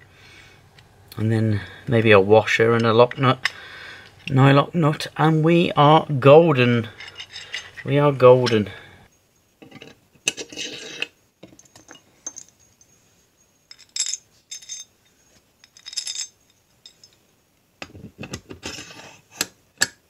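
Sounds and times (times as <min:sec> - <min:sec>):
metal parts clinking and scraping: 0:06.8 - 0:08.8, 0:09.6 - 0:12.9, 0:13.7 - 0:17.2.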